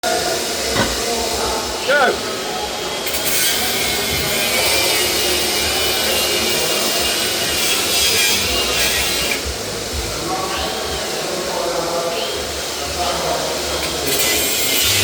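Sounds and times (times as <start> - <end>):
angle grinder cutting metal: 3.1 - 9.4, 14.1 - 15.0.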